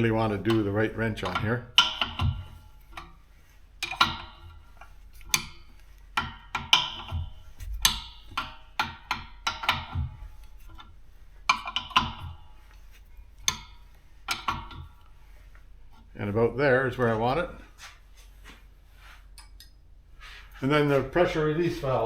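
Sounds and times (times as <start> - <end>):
wrench clinking on metal fittings: 0.0 - 3.2, 3.8 - 12.6.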